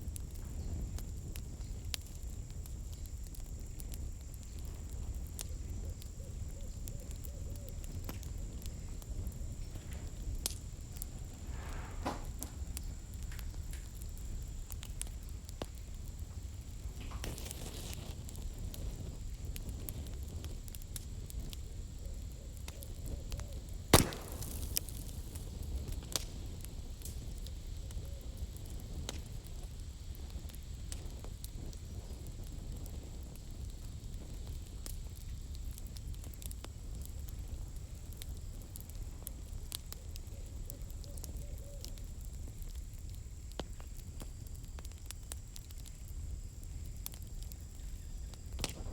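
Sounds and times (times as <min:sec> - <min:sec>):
campfire crackling: 0:00.0 - 0:48.9
fire low rumble: 0:00.0 - 0:48.9
sharp loud pop of fire: 0:11.5 - 0:12.6, 0:23.9 - 0:25.5.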